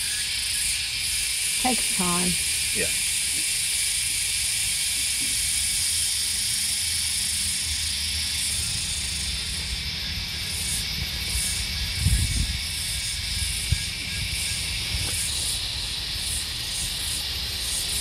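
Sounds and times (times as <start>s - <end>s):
cicadas droning: 0.0s - 18.0s.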